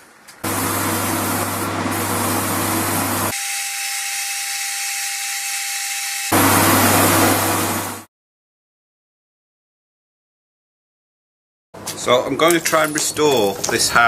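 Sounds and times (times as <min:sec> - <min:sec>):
power tool motor running: 0:00.4 - 0:08.1.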